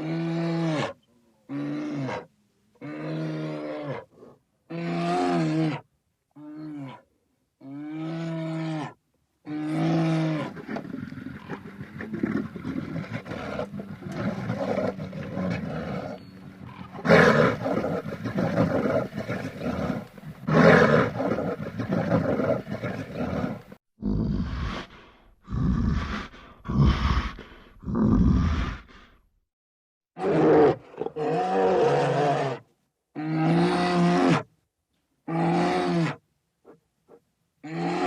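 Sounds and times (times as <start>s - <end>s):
tiger roaring: 7.8s - 29.0s.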